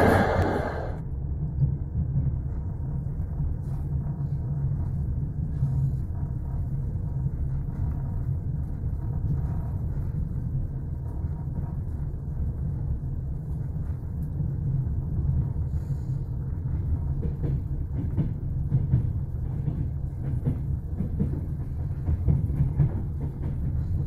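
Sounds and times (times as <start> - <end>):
train carriage rumbling: 0.0 - 24.0.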